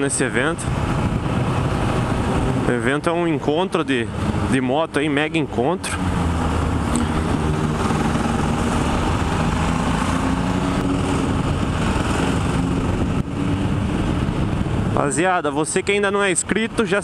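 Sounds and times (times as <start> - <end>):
constant rushing noise: 0.0 - 17.0
motorcycle engine running: 6.3 - 14.8.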